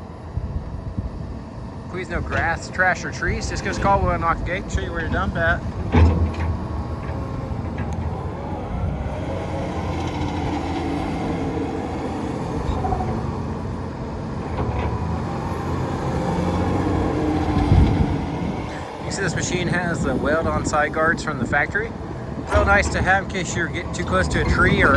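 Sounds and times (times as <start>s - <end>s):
excavator diesel engine running: 0.0s - 24.9s
loud clunk: 5.0s - 8.3s, 22.4s - 24.9s.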